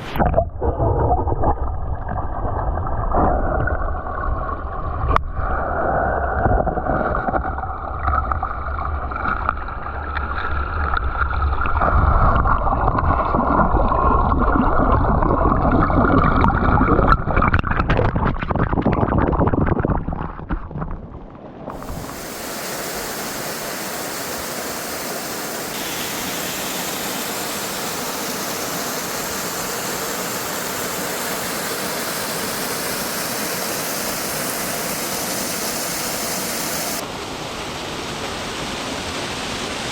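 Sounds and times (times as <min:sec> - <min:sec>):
waterfall rushing: 0:21.7 - 0:39.9.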